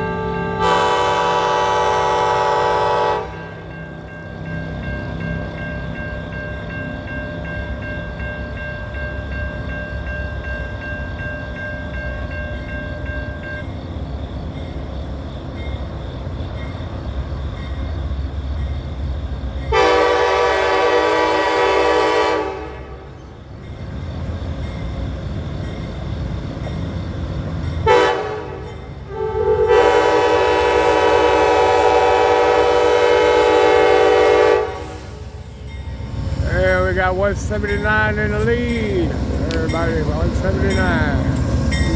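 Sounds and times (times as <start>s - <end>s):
train air horn blasts: 0.0s - 3.6s, 19.7s - 23.0s, 27.8s - 35.6s
diesel locomotive engine rumble: 0.0s - 41.9s.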